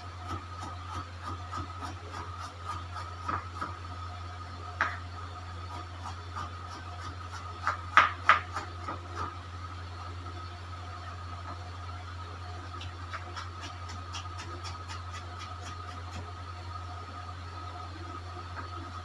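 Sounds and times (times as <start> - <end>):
steady low hum: 0.0 - 19.0
knife chopping on a board: 5.7 - 9.3.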